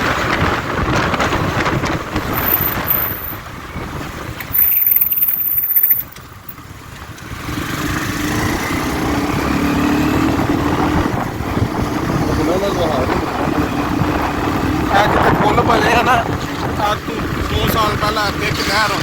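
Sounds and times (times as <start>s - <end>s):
wind rushing over microphone: 0.0s - 4.4s, 10.2s - 19.0s.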